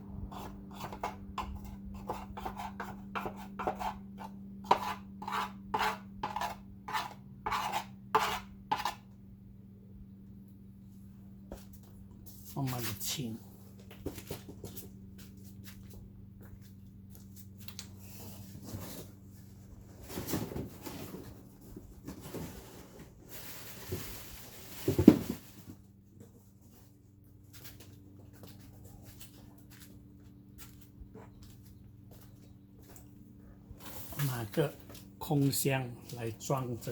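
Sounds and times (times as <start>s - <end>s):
steady low hum: 0.0s - 24.8s, 25.4s - 36.9s.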